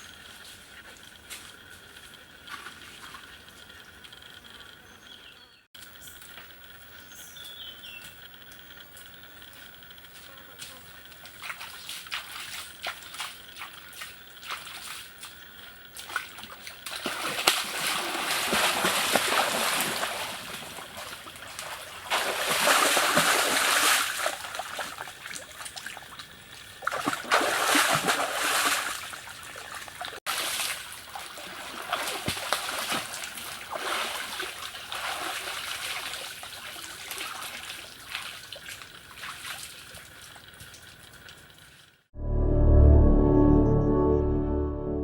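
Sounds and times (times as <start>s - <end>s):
water splashing and trickling: 1.6s - 4.7s, 10.8s - 42.1s.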